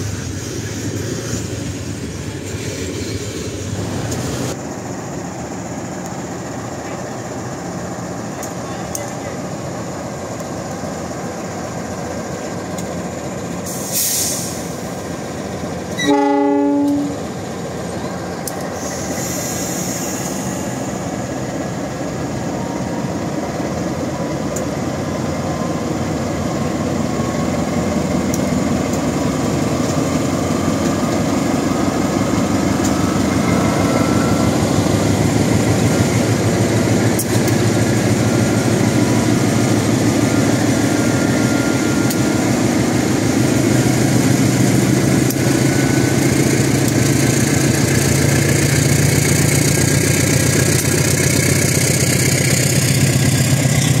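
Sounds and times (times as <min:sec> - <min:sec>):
locomotive horn blast: 0:16.0 - 0:17.2.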